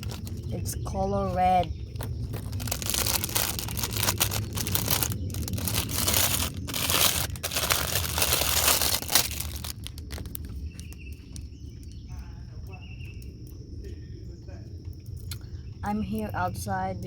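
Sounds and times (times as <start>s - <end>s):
packaging crinkling and tearing: 0.0s - 0.6s, 1.5s - 11.5s.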